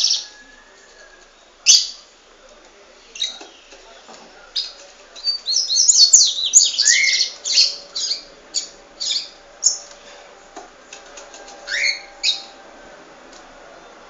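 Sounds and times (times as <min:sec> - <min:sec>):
pet birds chirping and squawking: 0:00.0 - 0:00.2, 0:04.6 - 0:10.0, 0:11.6 - 0:12.6.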